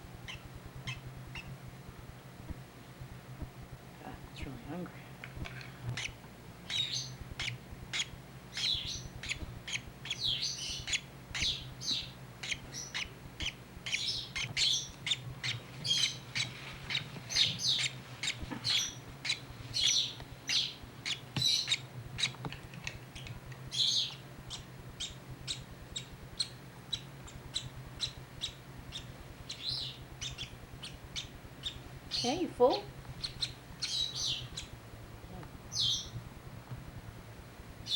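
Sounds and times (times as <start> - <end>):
baby bird begging chirps: 0.2 - 1.5, 6.0 - 22.4, 23.2 - 34.8, 35.7 - 36.2.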